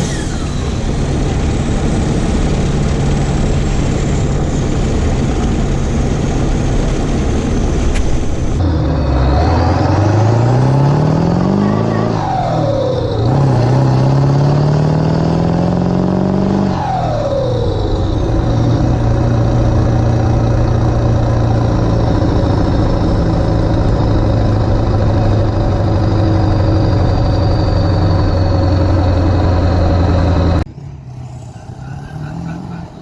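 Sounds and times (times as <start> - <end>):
diesel truck engine accelerating: 0.0 - 33.0.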